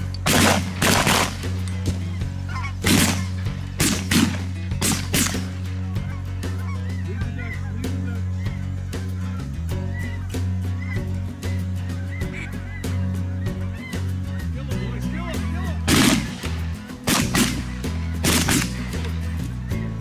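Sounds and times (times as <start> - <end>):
background music with bass: 0.0 - 20.0
geese honking: 0.0 - 20.0
shotgun blasts: 0.2 - 2.0, 2.8 - 5.6, 15.9 - 19.0.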